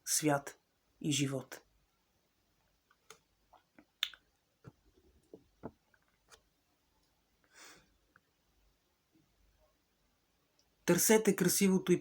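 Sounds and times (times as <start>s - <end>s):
short soft breath: 7.5s - 7.9s.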